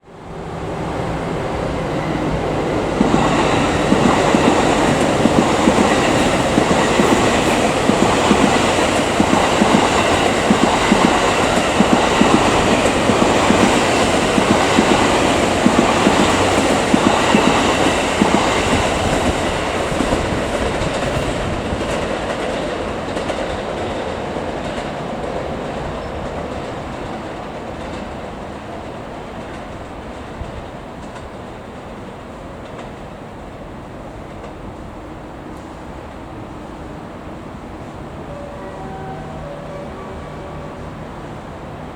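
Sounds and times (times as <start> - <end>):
train wheels clattering over rails: 1.8 - 33.0.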